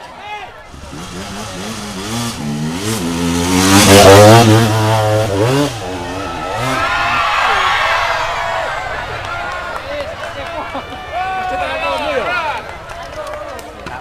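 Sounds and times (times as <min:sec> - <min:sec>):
motorcycle engine revving hard: 0:00.7 - 0:07.7.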